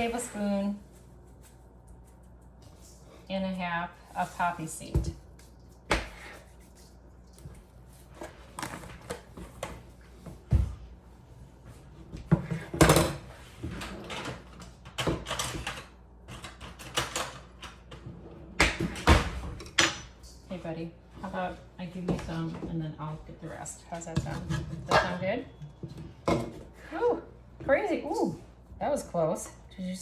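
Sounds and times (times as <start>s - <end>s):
kitchen utensils clattering: 19.5s - 20.3s, 24.0s - 26.6s.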